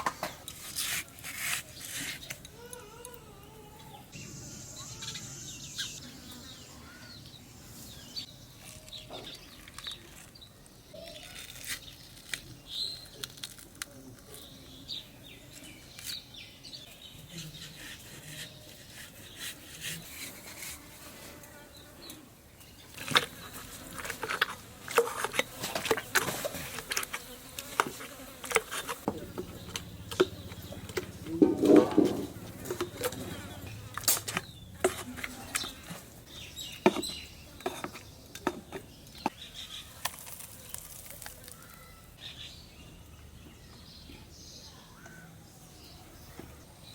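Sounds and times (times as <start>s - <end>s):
sharp knocks and clatter: 28.9s - 33.3s.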